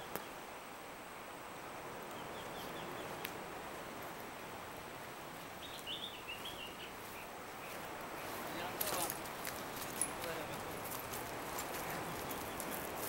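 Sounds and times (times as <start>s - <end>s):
outdoor background noise: 0.0s - 13.0s
faint click: 3.2s - 3.4s
small bird chirping: 5.6s - 8.4s.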